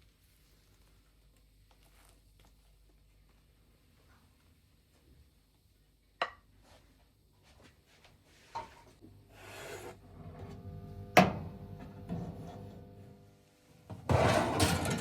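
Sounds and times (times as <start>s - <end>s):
steady hum: 9.0s - 14.0s.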